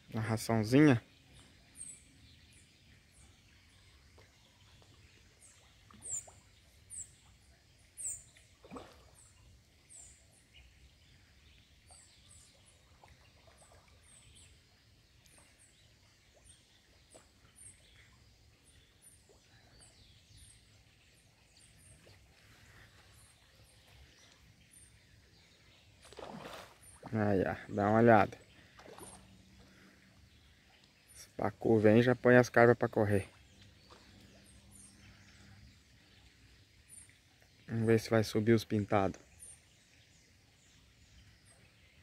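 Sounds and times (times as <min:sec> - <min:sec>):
small bird chirping: 0:01.2 - 0:07.4, 0:08.0 - 0:08.5.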